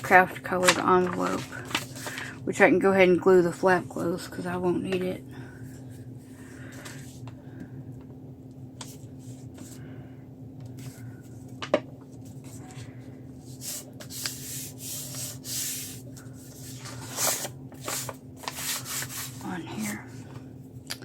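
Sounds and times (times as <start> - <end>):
paper rubbing and rustling: 0.5 - 2.3, 13.5 - 19.9
swishing rubs on paper: 13.5 - 19.5.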